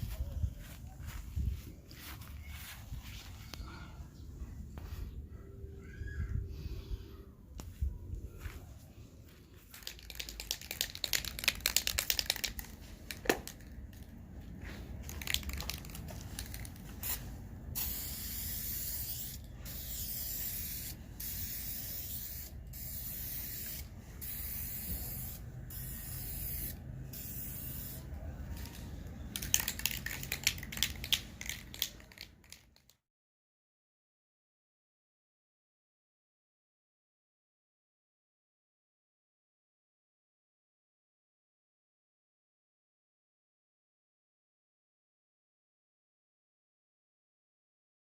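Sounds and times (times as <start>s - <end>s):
can clicking and rattling: 9.8s - 14.0s, 15.1s - 17.2s, 29.3s - 33.0s
aerosol spray hissing: 17.0s - 28.1s.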